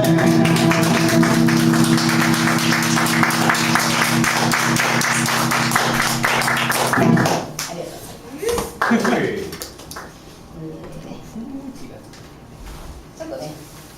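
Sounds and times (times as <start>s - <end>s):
guitar strummed rapidly: 0.0s - 7.7s.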